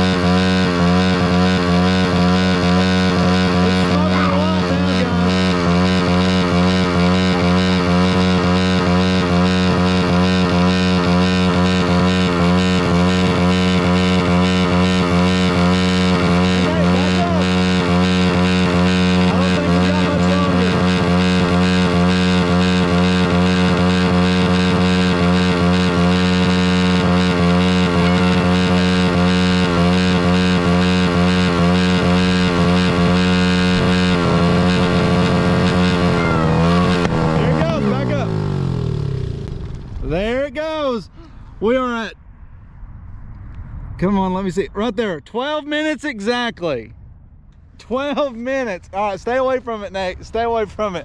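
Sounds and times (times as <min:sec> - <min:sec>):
small engine at high revs: 0:00.0 - 0:40.2.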